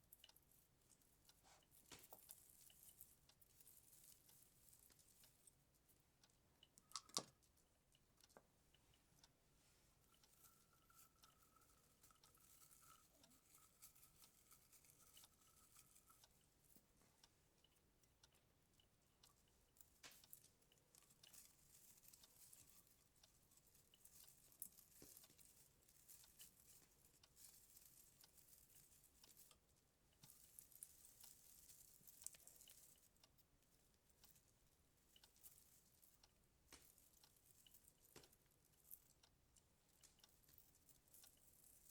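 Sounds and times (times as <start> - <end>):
faint rustling: 0.0 - 41.9
baubles clicking and tapping: 6.6 - 8.9.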